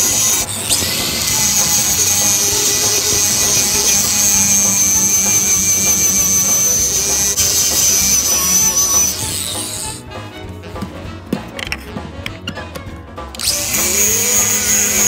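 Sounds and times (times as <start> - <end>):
angle grinder motor whine: 0.0 - 10.0, 13.4 - 15.0
disc rasping on wood: 0.0 - 10.1, 13.4 - 15.0.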